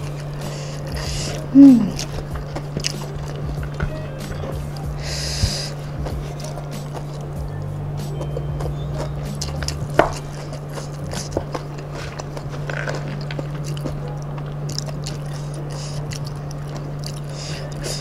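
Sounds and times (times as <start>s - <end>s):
chewing and crunching crispy food: 0.0s - 18.0s
steady low hum: 0.0s - 18.0s.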